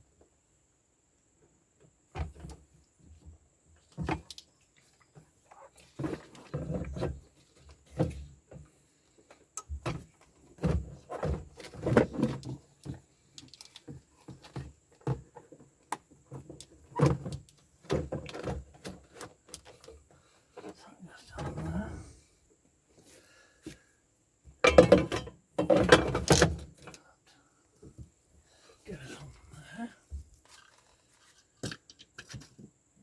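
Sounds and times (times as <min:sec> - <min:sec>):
parts knocking and clicking: 0:24.6 - 0:27.0.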